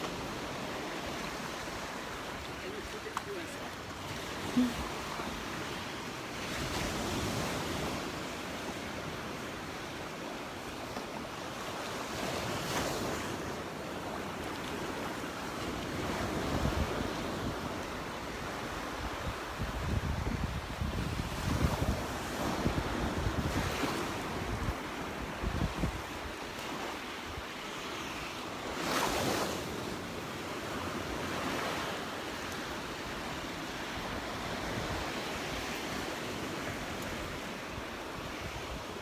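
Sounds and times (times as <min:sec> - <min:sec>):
surf washing onto beach: 0:00.0 - 0:39.0
wind buffeting microphone: 0:16.0 - 0:26.5.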